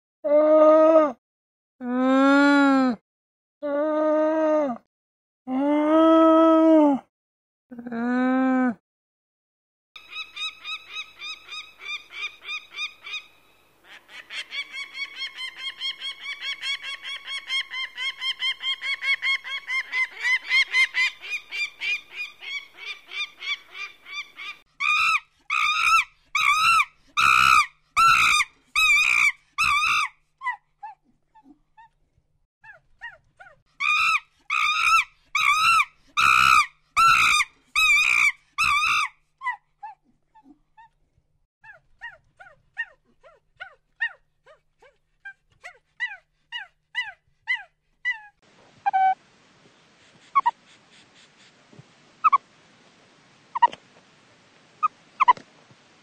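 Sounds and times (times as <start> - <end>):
short repeated animal calls: 50.2 - 51.5, 52.2 - 52.4, 53.5 - 53.8, 54.8 - 55.5.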